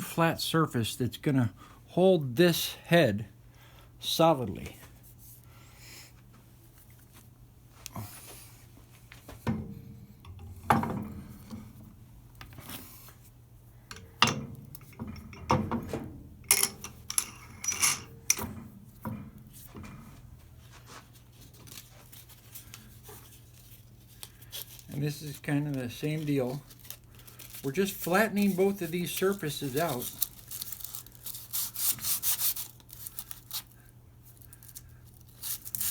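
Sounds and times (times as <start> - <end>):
hand tool scraping metal: 16.5 - 18.5.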